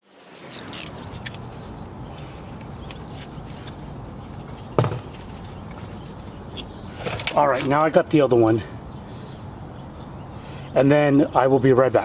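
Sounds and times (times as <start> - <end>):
socket wrench clicking: 0.3 - 1.4.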